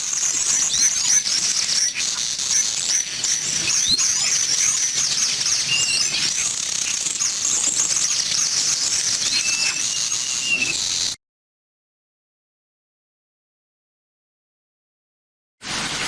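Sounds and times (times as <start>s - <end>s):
flock of birds chattering: 0.0s - 11.2s.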